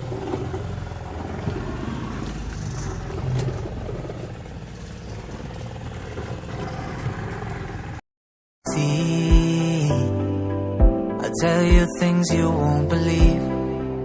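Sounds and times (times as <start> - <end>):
engine running with low hum: 0.0 - 8.0.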